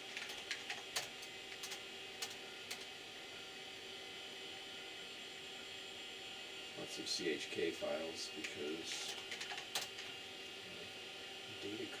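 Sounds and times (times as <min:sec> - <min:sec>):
computer humming: 0:00.0 - 0:12.0
computer keyboard keystrokes: 0:00.1 - 0:02.9, 0:09.1 - 0:10.1.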